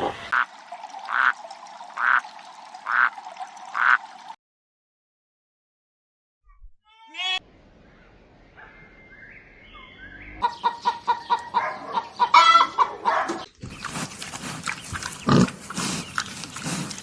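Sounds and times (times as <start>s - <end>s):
chickens clucking: 10.4s - 16.9s
pigs grunting: 12.4s - 17.0s.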